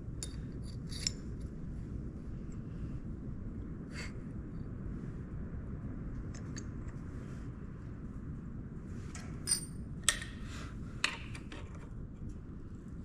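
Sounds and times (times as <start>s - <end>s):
steady low hum: 0.0s - 13.0s
metal parts clinking: 0.2s - 1.2s, 9.4s - 10.4s.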